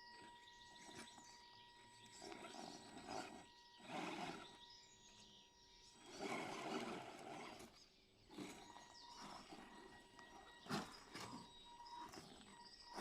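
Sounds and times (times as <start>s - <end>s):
rc truck motor whirring: 0.0s - 13.0s
tyres grinding over ground: 2.1s - 4.6s, 6.0s - 13.0s.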